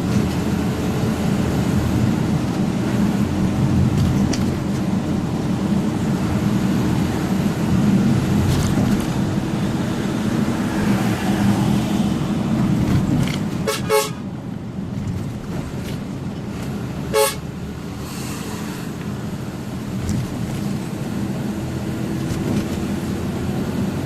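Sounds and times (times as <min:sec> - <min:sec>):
vehicle horn tooting: 0:13.6 - 0:14.2, 0:17.1 - 0:17.5.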